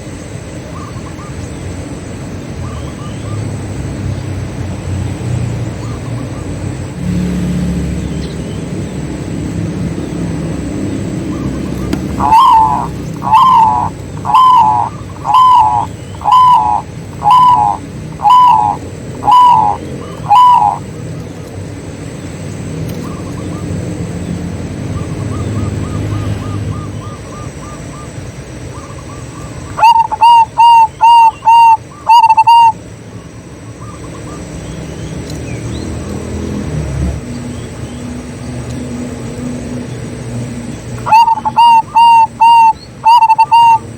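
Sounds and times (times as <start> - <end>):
doves cooing: 10.6 - 22.1, 25.0 - 32.8, 40.4 - 43.9.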